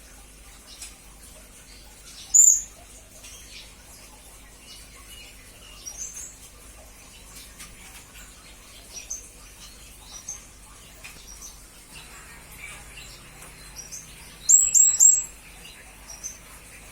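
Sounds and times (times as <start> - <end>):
parrot chirping: 2.3 - 2.7, 12.6 - 16.4.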